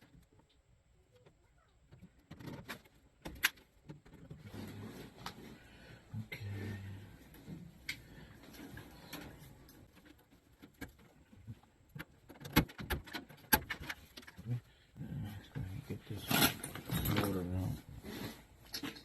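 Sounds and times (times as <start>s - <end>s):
tools and metal parts clicking: 16.3s - 17.6s.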